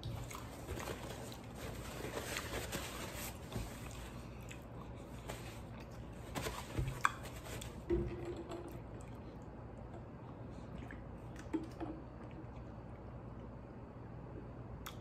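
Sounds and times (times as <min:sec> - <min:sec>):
man chewing food: 0:03.8 - 0:06.2.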